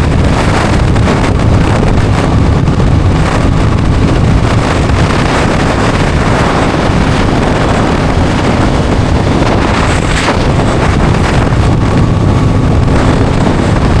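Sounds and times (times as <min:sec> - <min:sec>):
heavy wind on microphone: 0:00.0 - 0:14.0
motorcycle engine droning: 0:00.0 - 0:14.0.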